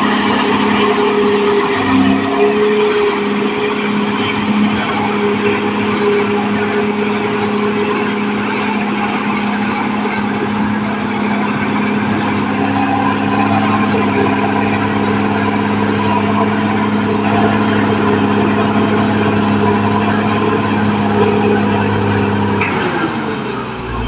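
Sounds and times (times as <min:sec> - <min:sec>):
bulldozer diesel engine running: 0:00.0 - 0:24.0
higher engine tone: 0:00.0 - 0:24.0.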